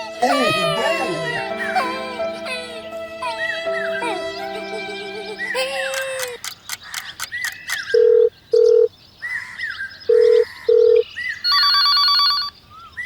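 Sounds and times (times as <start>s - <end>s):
telephone ringing beeps: 8.0s - 8.9s, 10.1s - 12.5s.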